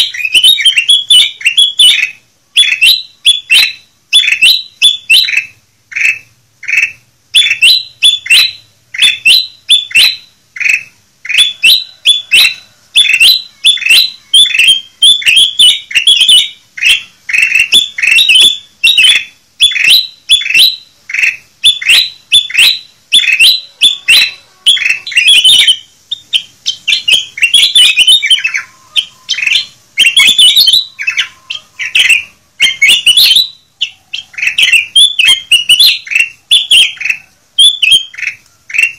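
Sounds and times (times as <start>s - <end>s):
bulbul chirping: 0.0s - 38.9s.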